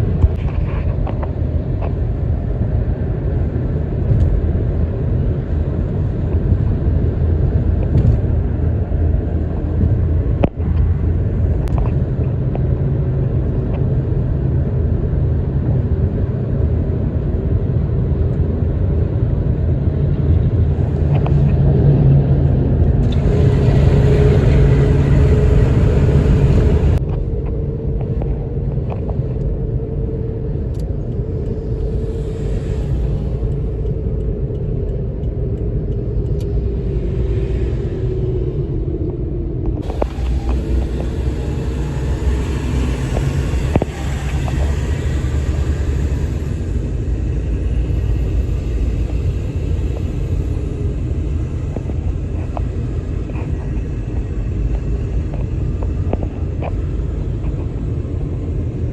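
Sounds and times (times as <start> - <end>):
highway traffic rumble: 0.0 - 58.9
traffic hiss: 39.8 - 58.2.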